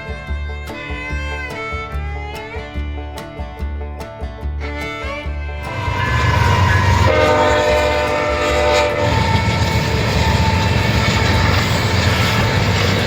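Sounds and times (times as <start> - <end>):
train horn chord: 5.6 - 12.8
train passing close by: 5.6 - 13.0.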